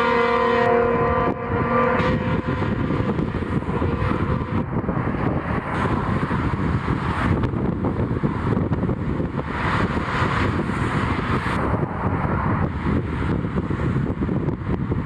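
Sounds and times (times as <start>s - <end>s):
train horn chord: 0.0s - 6.1s
train rumbling by: 0.0s - 15.0s.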